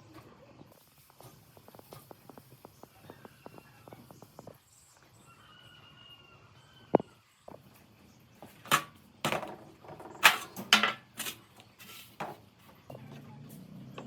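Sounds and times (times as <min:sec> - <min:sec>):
hard objects knocking and clattering: 0:08.7 - 0:11.4.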